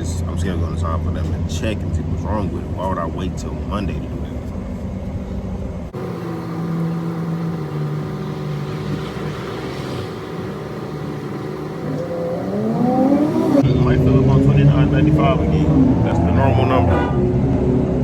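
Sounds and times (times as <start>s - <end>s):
car engine accelerating: 5.7s - 18.0s.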